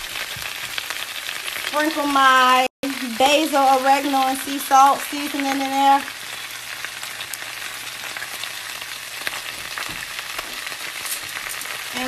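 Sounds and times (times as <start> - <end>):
spinach sizzling in a skillet: 0.0 - 12.0.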